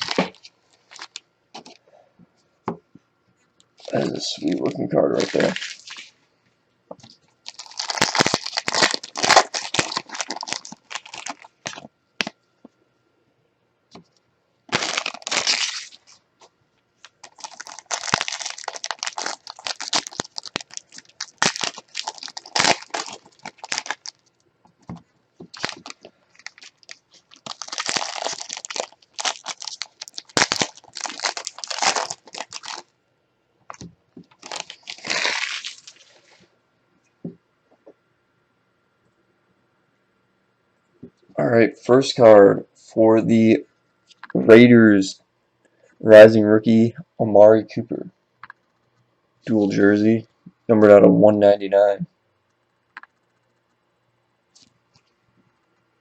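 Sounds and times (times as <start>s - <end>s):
plastic wrapping crinkling and tearing: 0.0s - 1.8s, 3.8s - 6.2s, 7.0s - 12.3s, 14.7s - 32.9s, 33.7s - 36.4s.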